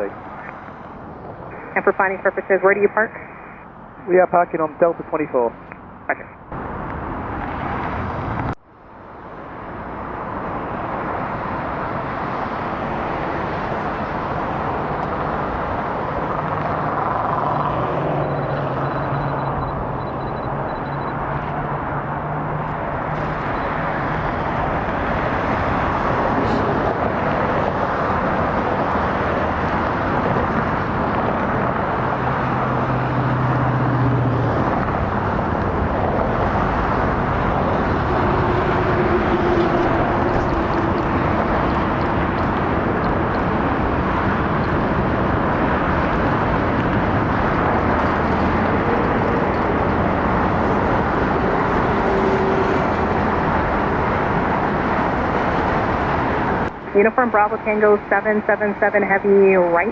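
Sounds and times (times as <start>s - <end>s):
jet engines rushing: 0.0s - 8.6s, 9.2s - 59.9s.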